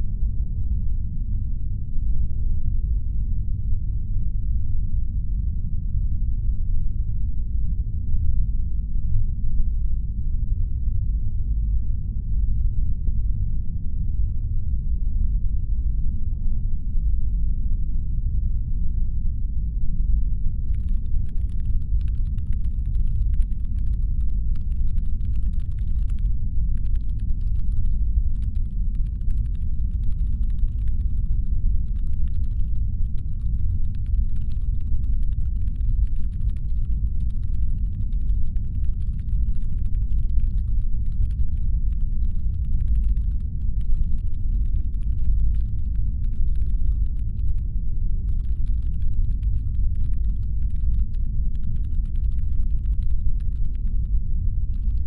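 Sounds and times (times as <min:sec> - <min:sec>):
deep brown-noise rumble: 0:00.0 - 0:55.0
faint fast clicking: 0:20.7 - 0:55.0.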